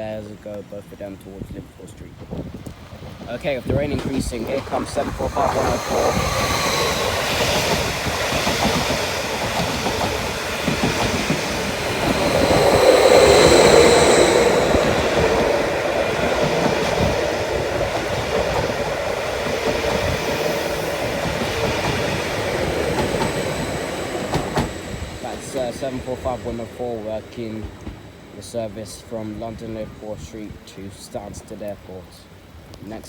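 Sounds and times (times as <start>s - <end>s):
train rumble: 0.0s - 33.0s
faint high whine: 3.3s - 18.2s, 20.4s - 33.0s
train wheels clattering over rail joints: 3.6s - 28.8s.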